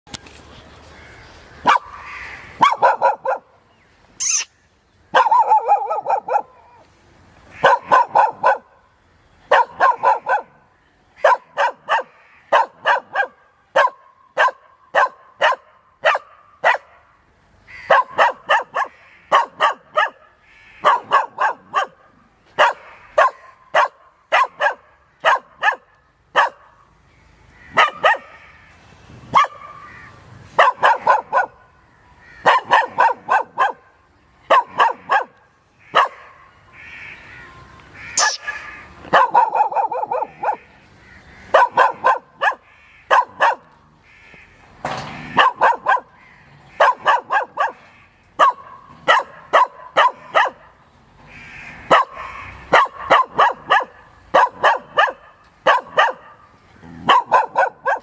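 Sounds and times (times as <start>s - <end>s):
dog barking: 1.6s - 2.0s, 2.6s - 3.6s, 5.1s - 6.8s, 7.6s - 8.8s, 9.5s - 10.6s, 11.2s - 17.1s, 17.9s - 26.8s, 27.8s - 28.4s, 29.3s - 29.8s, 30.6s - 31.6s, 32.4s - 33.9s, 34.5s - 36.6s, 38.2s - 40.7s, 41.5s - 43.7s, 45.4s - 50.8s, 51.9s - 58.0s.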